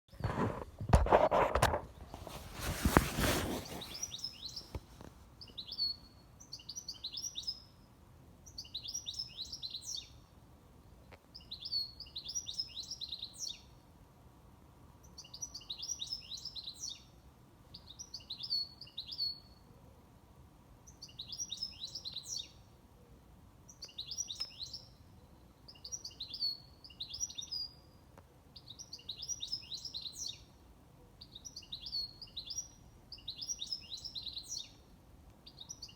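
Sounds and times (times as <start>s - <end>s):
songbird chirping phrase: 3.2s - 4.8s, 5.4s - 10.3s, 11.4s - 13.8s, 15.0s - 17.2s, 20.8s - 22.7s, 23.6s - 35.9s.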